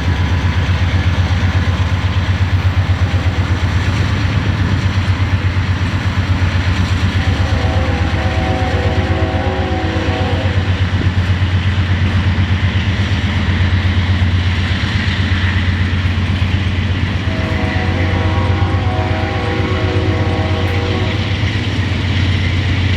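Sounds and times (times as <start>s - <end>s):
locomotive engine rumbling: 0.0s - 22.9s
steady horn tones: 7.2s - 10.6s, 17.3s - 21.4s.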